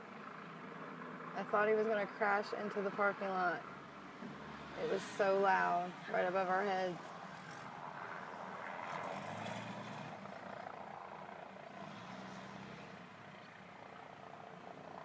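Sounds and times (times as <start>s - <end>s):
helicopter flying low: 0.0s - 15.0s.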